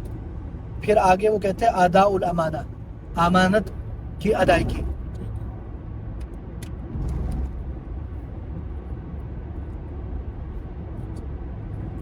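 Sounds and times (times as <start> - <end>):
road and engine rumble in car: 0.0 - 12.0.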